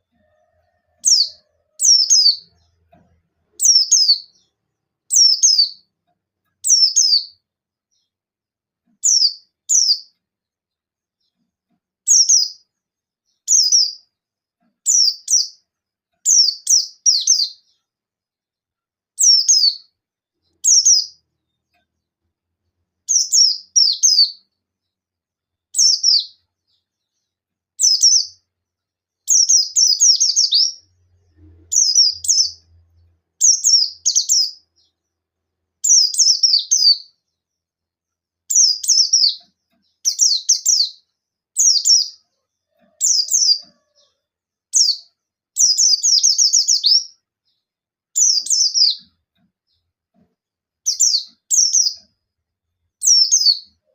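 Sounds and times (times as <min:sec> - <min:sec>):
bird singing high-pitched call: 0:01.0 - 0:02.6, 0:03.6 - 0:04.5, 0:05.1 - 0:05.9, 0:06.6 - 0:07.4, 0:09.0 - 0:10.1, 0:12.1 - 0:12.6, 0:13.4 - 0:14.0, 0:14.9 - 0:15.6, 0:16.3 - 0:17.7, 0:19.2 - 0:19.9, 0:23.1 - 0:24.4, 0:25.8 - 0:26.4, 0:27.8 - 0:28.4, 0:29.3 - 0:30.9, 0:31.7 - 0:32.8, 0:33.4 - 0:34.9, 0:35.8 - 0:37.1, 0:38.5 - 0:39.4, 0:40.1 - 0:41.0, 0:41.6 - 0:42.2, 0:43.0 - 0:43.8, 0:44.7 - 0:47.2, 0:48.2 - 0:49.1, 0:50.9 - 0:52.1, 0:53.0 - 0:53.8.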